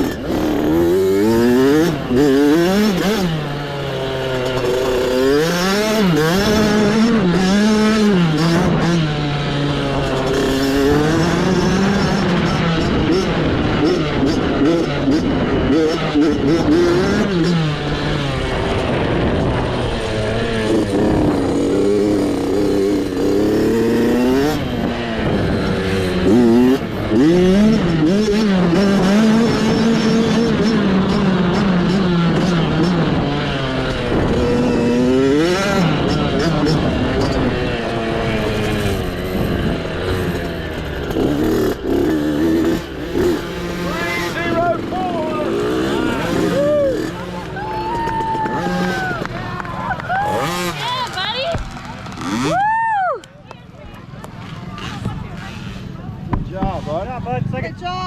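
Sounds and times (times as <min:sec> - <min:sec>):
motorcycle engine revving: 0:00.0 - 0:52.9, 0:53.5 - 0:57.7.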